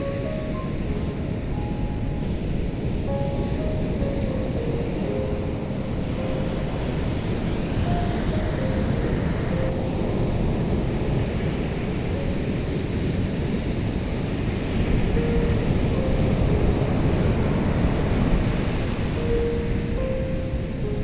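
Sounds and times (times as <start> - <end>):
ocean surf breaking on shore: 0.0 - 21.0.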